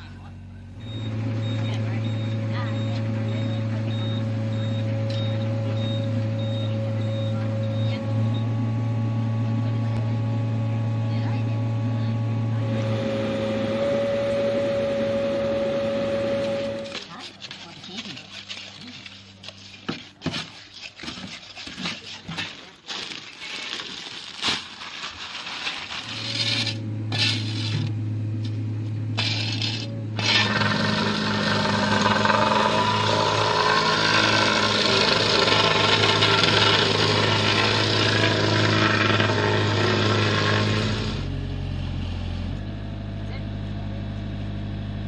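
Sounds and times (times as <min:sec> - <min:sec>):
machine humming: 0:00.5 - 0:17.2, 0:26.1 - 0:42.6.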